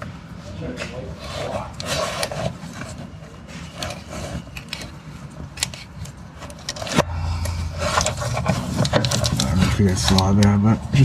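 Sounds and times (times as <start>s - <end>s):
low steady hum: 6.8s - 10.2s.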